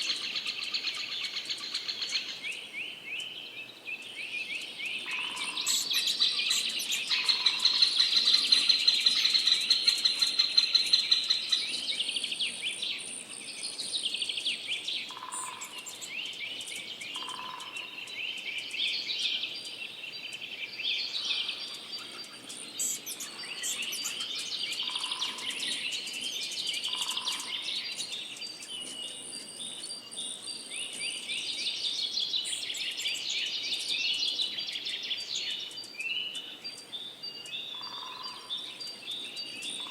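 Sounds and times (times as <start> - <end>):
songbird twittering song: 0.0 - 39.9.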